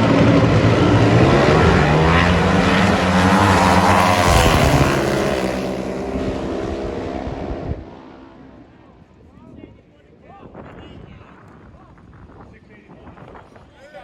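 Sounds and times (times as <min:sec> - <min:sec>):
motorcycles at full throttle: 0:00.0 - 0:09.1.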